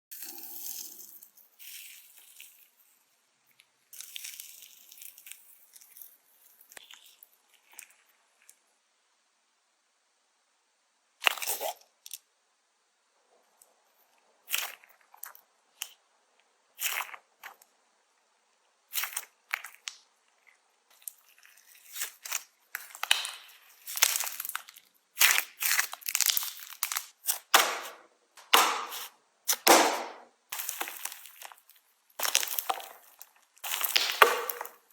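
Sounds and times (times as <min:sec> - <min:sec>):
slime crackling when squeezed: 0:20.9 - 0:27.9, 0:28.5 - 0:34.9.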